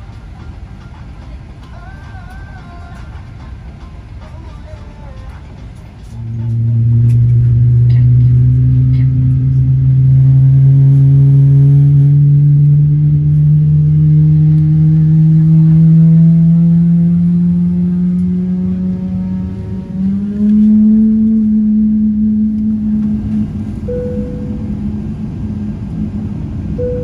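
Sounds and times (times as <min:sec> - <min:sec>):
jet engine whine spooling up: 0:17.9 - 0:27.0.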